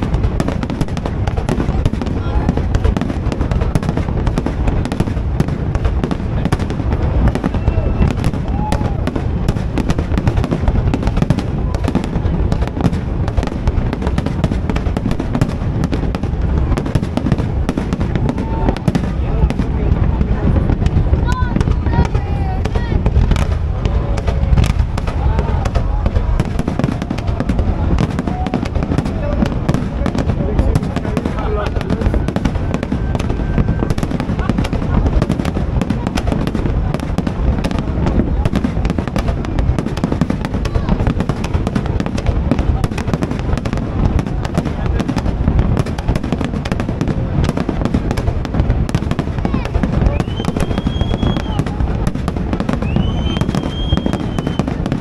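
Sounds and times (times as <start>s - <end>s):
fireworks bangs and crackles: 0.0s - 55.0s
heavy rumble of fireworks: 0.0s - 55.0s.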